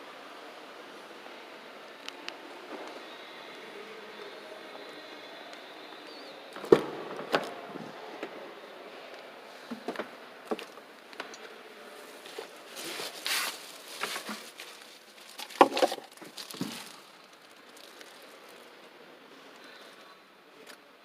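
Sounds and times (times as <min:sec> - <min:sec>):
handling clicks and rustling: 0:12.2 - 0:18.6.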